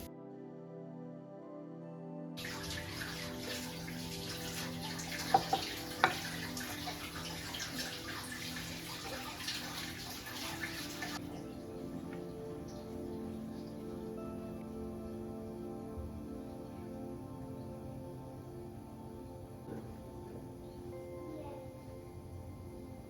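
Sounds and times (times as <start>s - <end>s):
water running from a tap: 2.4s - 12.9s.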